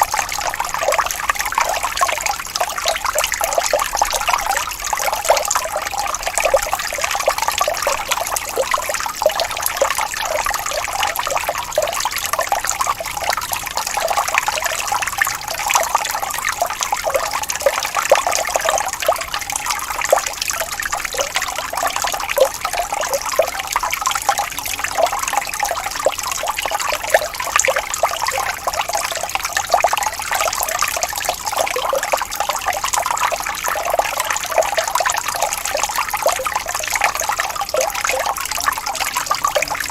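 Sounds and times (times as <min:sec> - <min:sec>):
stream rippling and splashing: 0:00.0 - 0:39.9.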